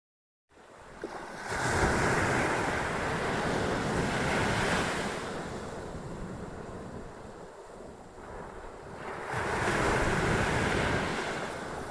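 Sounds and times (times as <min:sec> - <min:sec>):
ocean wave breaking: 0:08.3 - 0:11.9.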